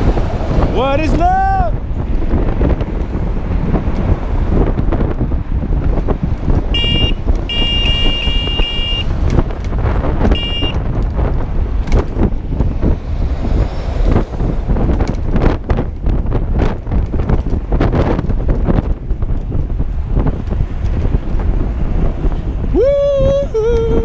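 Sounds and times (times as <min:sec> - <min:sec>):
traffic noise: 0:00.0 - 0:24.0
wind on microphone: 0:00.0 - 0:24.0
horn beeping: 0:06.7 - 0:09.1, 0:10.3 - 0:10.8.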